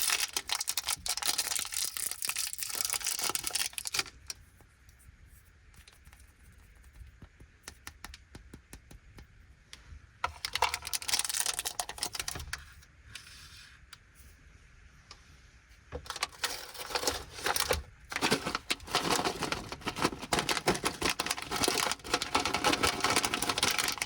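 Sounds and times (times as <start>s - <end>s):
plastic wrappers crinkling: 0.0s - 4.4s, 10.2s - 12.6s, 16.1s - 24.0s.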